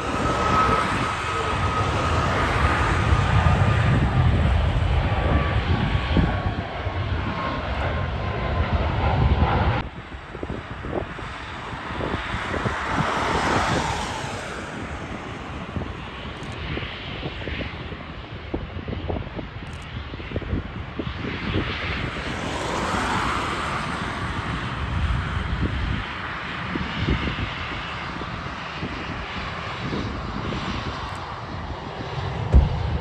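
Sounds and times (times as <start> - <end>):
faint falling jet whine: 0.0 - 16.4, 30.2 - 33.0
jet engines rumbling: 0.0 - 33.0.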